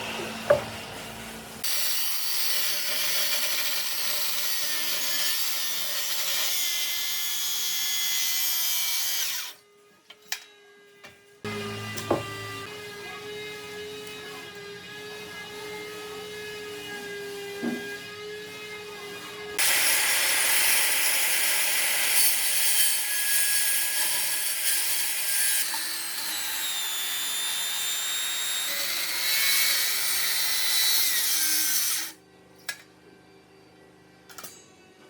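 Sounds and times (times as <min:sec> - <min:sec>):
power tool cutting hardwood: 0:01.6 - 0:09.6, 0:19.6 - 0:32.2.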